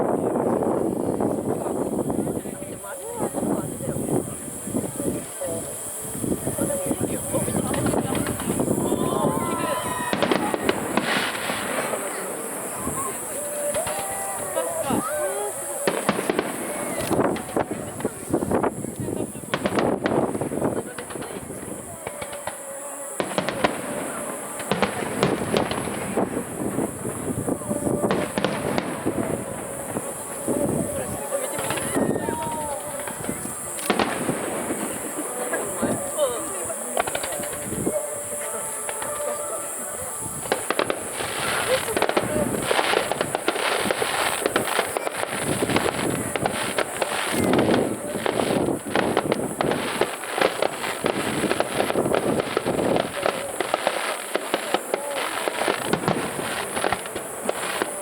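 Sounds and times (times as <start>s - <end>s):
fireworks popping and banging: 0.0s - 58.0s.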